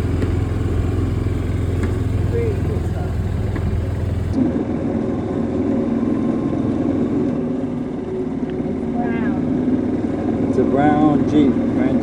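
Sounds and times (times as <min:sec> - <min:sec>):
golf cart motor: 0:00.0 - 0:04.4
tyre noise: 0:00.0 - 0:04.4.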